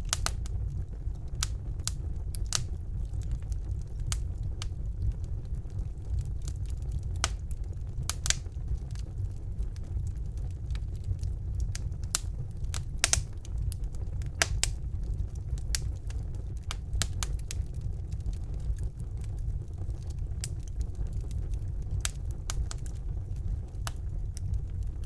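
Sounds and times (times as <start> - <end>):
fire crackling and popping: 0.0 - 25.0.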